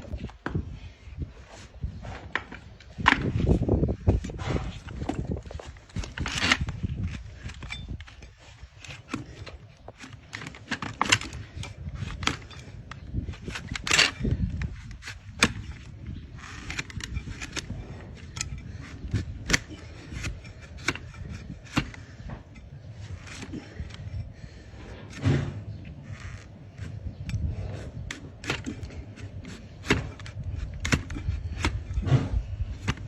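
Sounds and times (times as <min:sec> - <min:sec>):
hoof trimmer cutting hoof: 0:08.9 - 0:33.0.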